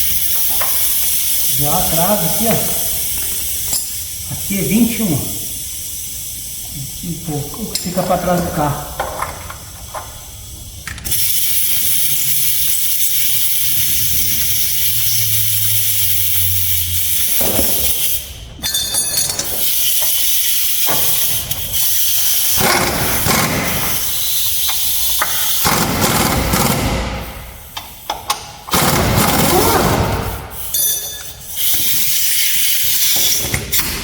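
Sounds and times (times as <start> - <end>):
loud steady hiss: 0.0 - 18.4.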